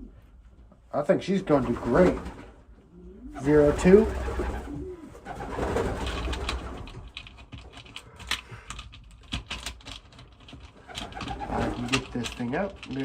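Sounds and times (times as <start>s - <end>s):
pigeon cooing: 2.9s - 5.8s
sharp clicks of birds moving: 4.0s - 13.0s.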